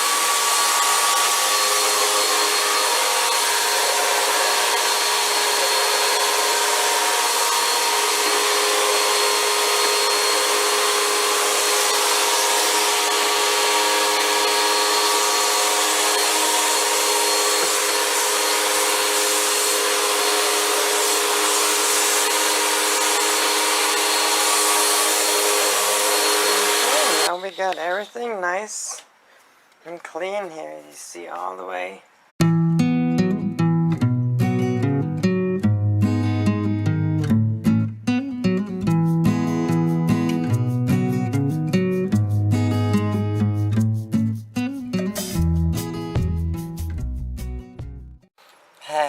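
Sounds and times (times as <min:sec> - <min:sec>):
vacuum cleaner running: 0:00.0 - 0:27.4.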